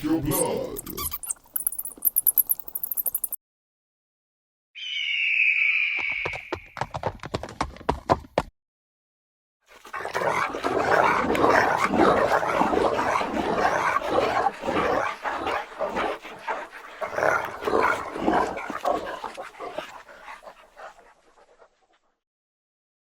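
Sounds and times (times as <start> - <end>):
dogs growling and barking: 9.7 - 22.1.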